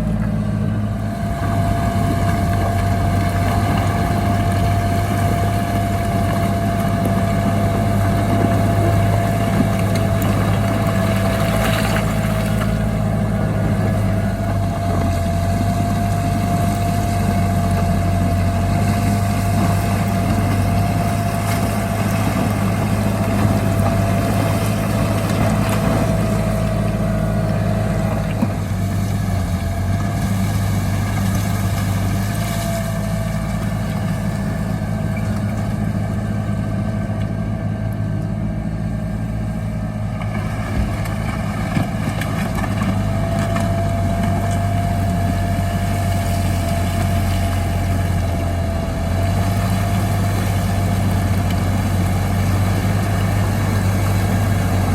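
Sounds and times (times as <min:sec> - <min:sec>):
heavy diesel engine running: 0:00.0 - 0:54.9.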